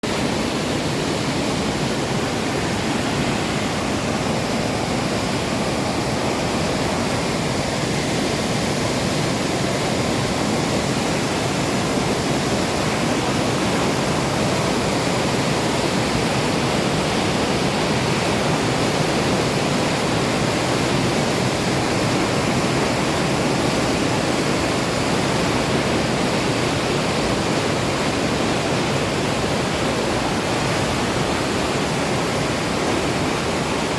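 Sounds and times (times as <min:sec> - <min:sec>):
stream rushing over rocks: 0:00.0 - 0:33.9.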